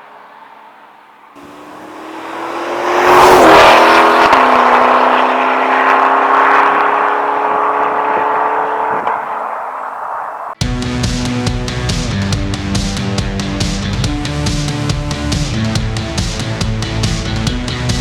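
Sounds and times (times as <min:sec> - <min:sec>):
sports car accelerating past: 0:01.4 - 0:10.6.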